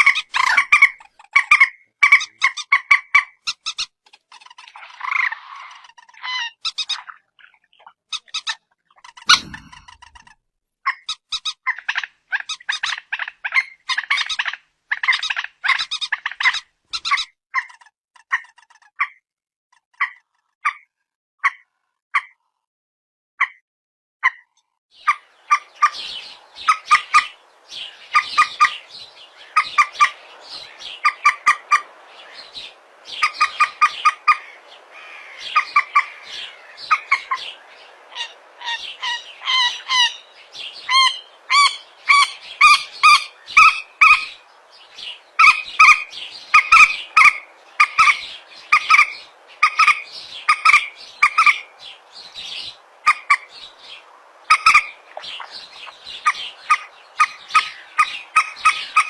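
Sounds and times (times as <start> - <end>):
rail bird calling sharp notes: 9.2 - 10.2.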